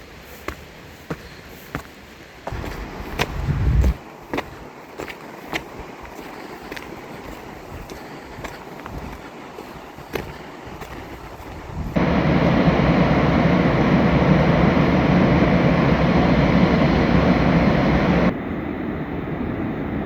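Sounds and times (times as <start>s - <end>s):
rushing river water: 0.0s - 12.2s.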